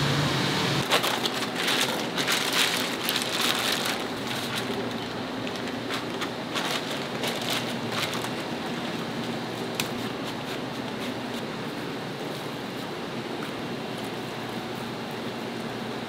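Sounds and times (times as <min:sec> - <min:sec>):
oil crackles and pops: 0:00.8 - 0:10.2.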